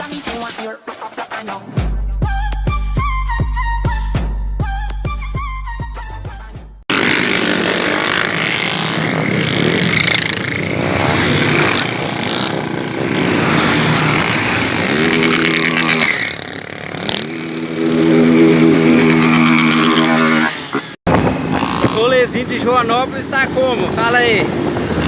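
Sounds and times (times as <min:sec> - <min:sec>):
motorcycle engines revving: 0:06.9 - 0:25.0.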